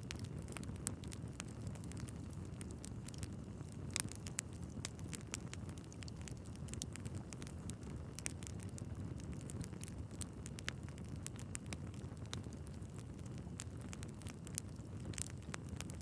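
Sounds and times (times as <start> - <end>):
fire flames rumbling: 0.0 - 16.0
logs crackling and popping: 0.0 - 16.0.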